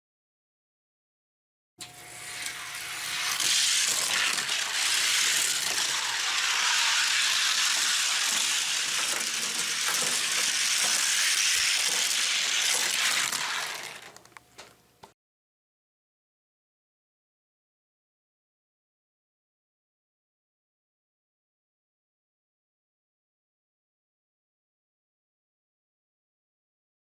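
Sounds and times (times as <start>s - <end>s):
toy cars rolling on plastic track: 1.8s - 14.8s.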